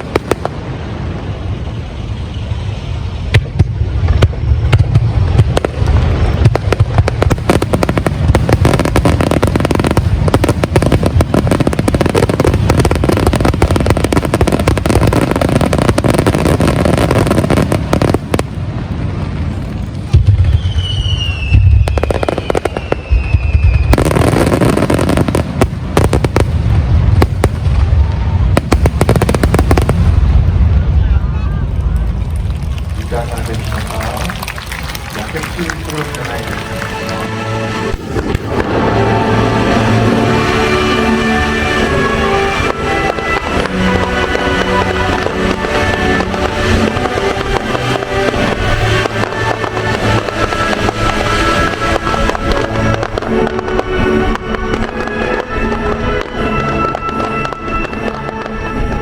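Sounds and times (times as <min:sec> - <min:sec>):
fireworks booming and crackling: 0:00.0 - 0:59.0
falling firework whistle: 0:20.1 - 0:25.4.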